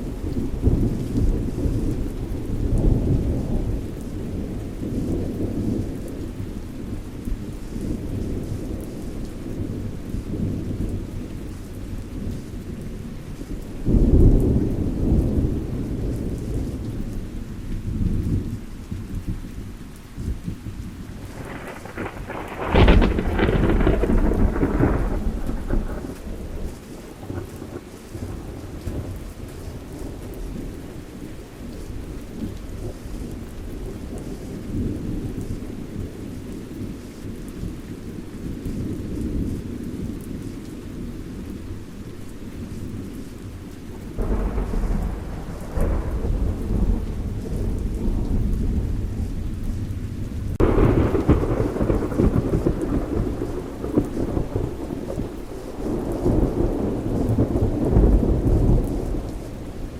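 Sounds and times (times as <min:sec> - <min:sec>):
thunder rumbling: 0:00.0 - 0:19.5, 0:20.2 - 0:31.1, 0:42.9 - 0:59.9
steady rain: 0:00.0 - 0:59.9
loud thunder clap: 0:21.3 - 0:26.4, 0:44.2 - 0:49.3, 0:50.6 - 0:59.4.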